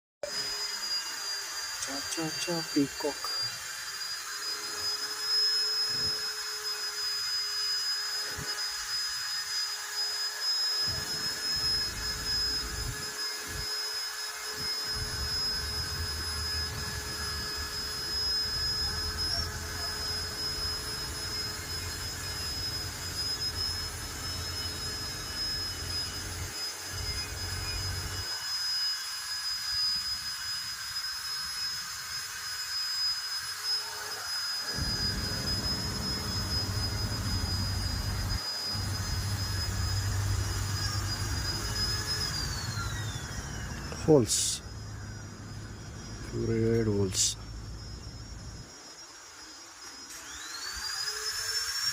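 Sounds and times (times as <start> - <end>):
mechanical whine with hiss: 0.2 - 51.9
low rumble: 34.8 - 44.0.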